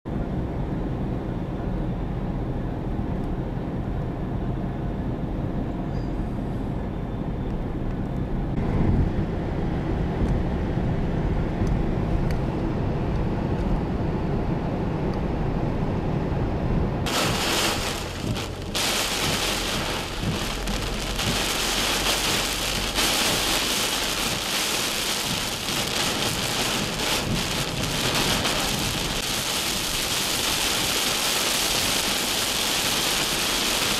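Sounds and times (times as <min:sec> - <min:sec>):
thunder rumbling: 0:17.1 - 0:33.9
torrential rain pouring: 0:17.1 - 0:33.9.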